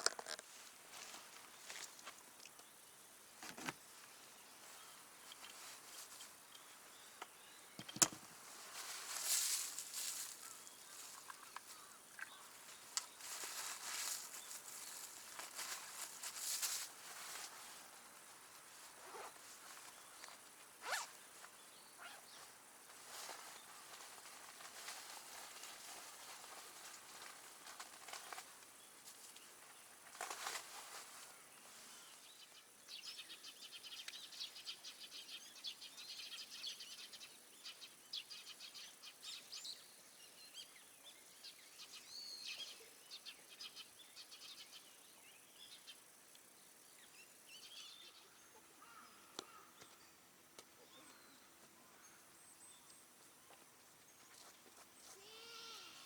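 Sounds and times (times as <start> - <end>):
faint rustling and crackling handling: 0.0 - 2.8, 3.4 - 32.5
faint bird chirps: 31.6 - 46.0, 46.8 - 56.0.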